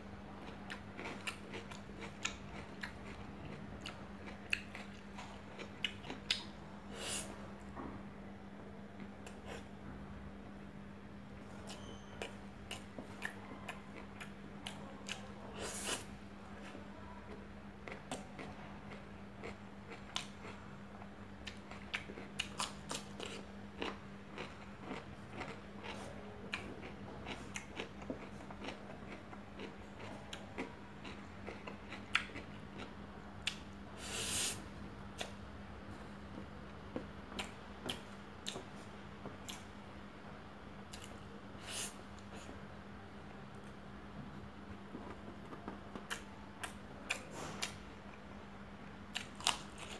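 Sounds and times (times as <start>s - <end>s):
steady low hum: 0.0s - 49.9s
chewing and lip-smacking: 0.4s - 6.5s, 11.6s - 16.0s, 17.3s - 20.6s, 21.4s - 33.7s, 37.0s - 38.8s.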